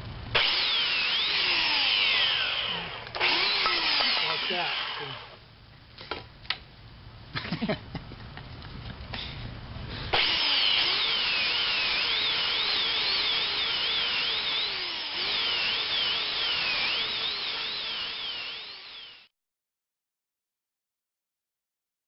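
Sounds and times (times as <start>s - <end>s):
power tool motor wavering: 0.4s - 5.4s, 10.1s - 19.3s.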